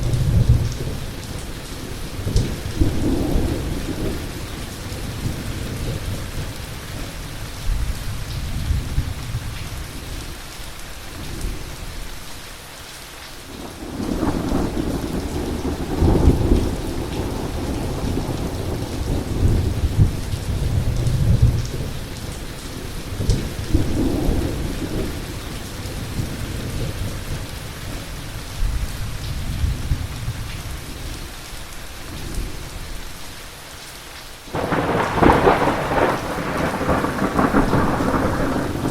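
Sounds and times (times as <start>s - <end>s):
heavy rain falling: 0.0s - 38.9s
rolling thunder: 13.6s - 22.4s, 34.5s - 38.9s.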